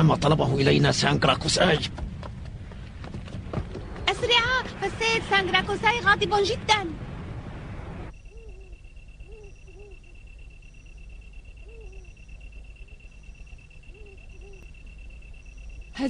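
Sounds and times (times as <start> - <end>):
high insect trill: 8.1 - 16.0
low animal calls: 8.1 - 16.0.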